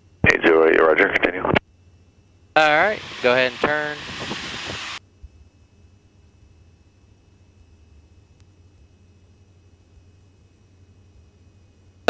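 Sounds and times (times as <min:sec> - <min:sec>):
intercom low hum: 0:00.0 - 0:05.4.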